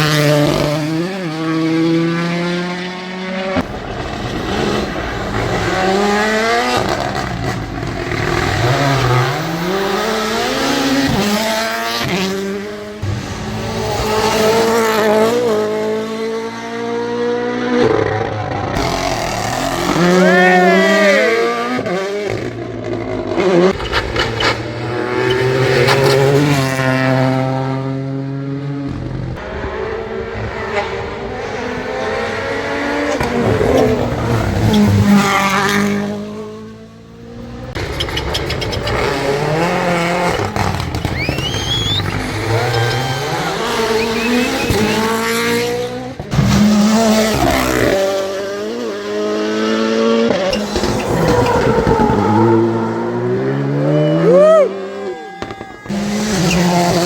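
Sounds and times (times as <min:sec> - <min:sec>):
rally car engines revving: 0:00.0 - 0:57.0
tyre squeal: 0:37.8 - 0:45.1, 0:50.5 - 0:57.0.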